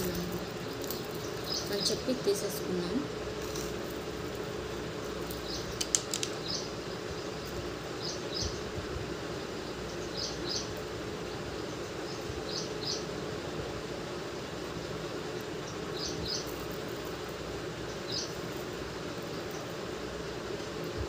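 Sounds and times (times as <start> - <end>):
small bird chirping: 0.0 - 2.7, 5.2 - 8.8, 9.6 - 13.1, 15.6 - 17.2, 17.8 - 19.8
steady hum: 0.0 - 21.0
sharp clicks: 5.7 - 6.4.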